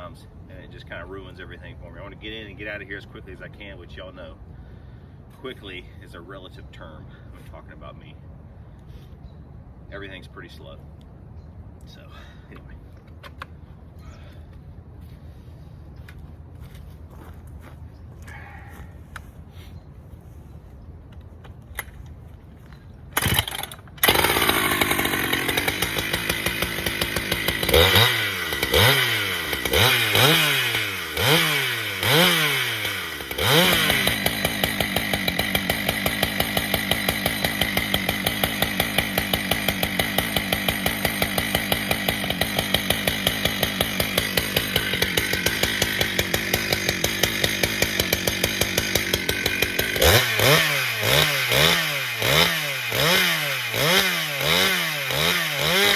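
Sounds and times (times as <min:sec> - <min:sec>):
chainsaw starting and revving: 0:23.2 - 0:55.9.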